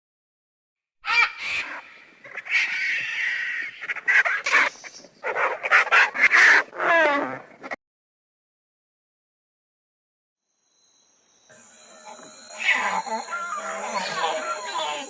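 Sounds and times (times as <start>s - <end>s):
bird calls and squawks: 1.0s - 7.8s, 11.5s - 15.0s.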